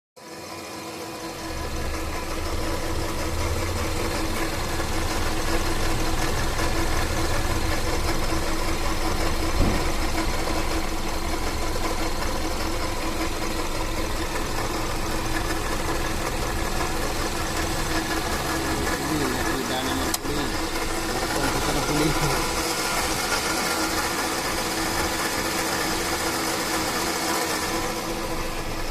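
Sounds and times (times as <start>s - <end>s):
car engine idling: 0.2s - 28.9s
water pump mechanical noise: 1.5s - 28.9s
short knock: 9.6s - 10.0s.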